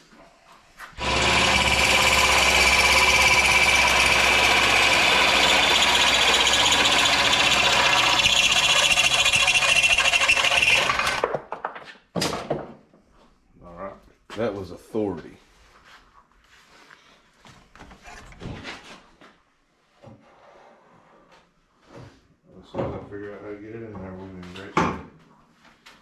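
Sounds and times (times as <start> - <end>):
electric power tool running: 1.0 - 11.3.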